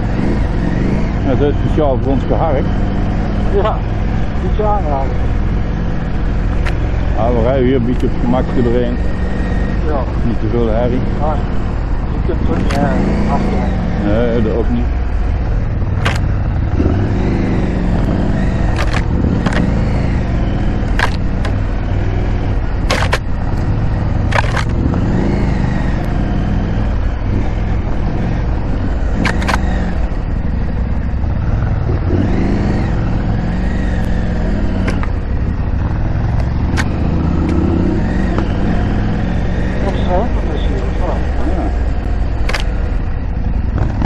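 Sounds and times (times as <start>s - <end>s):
motorcycle engine running: 0.0s - 44.0s
sharp clicks or knocks: 6.5s - 7.0s, 16.0s - 16.3s, 18.0s - 19.9s, 20.8s - 21.7s, 22.8s - 25.1s, 29.2s - 30.0s, 34.8s - 35.2s, 36.3s - 37.6s, 42.4s - 42.8s.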